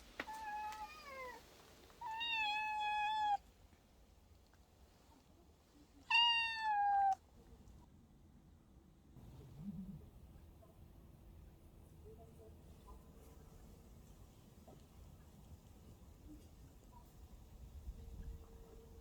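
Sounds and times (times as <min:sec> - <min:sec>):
cat yowling: 0:02.0 - 0:03.4, 0:06.1 - 0:07.2.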